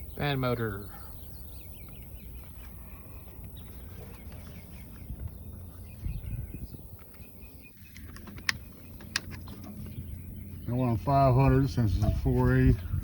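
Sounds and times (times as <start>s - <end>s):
steady low rumble: 1.3s - 13.0s.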